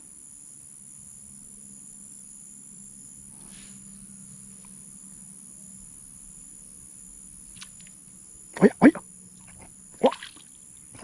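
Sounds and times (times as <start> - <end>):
high-pitched insect chorus: 0.0 - 11.0
soft rustle: 3.2 - 5.0.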